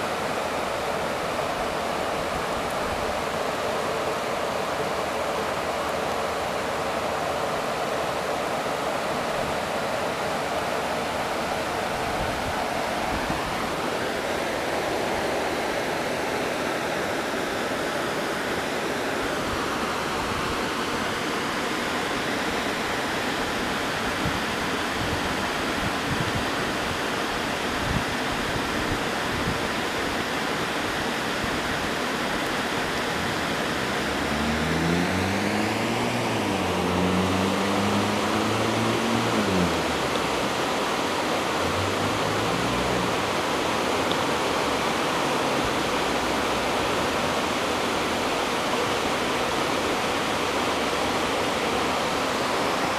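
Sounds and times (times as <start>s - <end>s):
heavy rain pouring: 0.0s - 52.9s
low pitched sound rising and falling: 33.6s - 40.6s.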